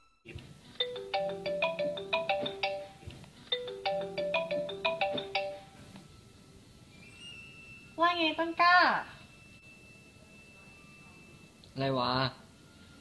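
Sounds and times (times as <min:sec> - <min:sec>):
mobile phone ringtone melody: 0:00.8 - 0:06.3.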